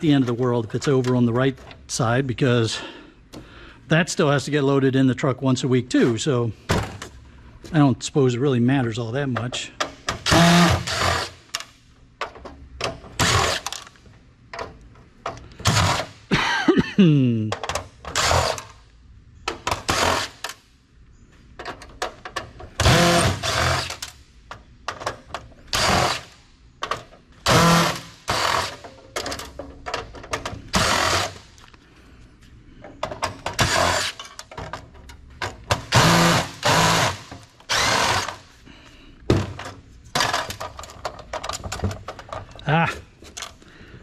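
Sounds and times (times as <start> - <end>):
parts clicking and clattering: 0.0 - 2.2, 8.8 - 16.3, 17.4 - 20.7, 21.3 - 44.0
power drill short bursts: 10.3 - 11.4, 22.8 - 24.0, 25.7 - 26.3, 27.5 - 28.8, 30.7 - 31.4, 35.9 - 38.4.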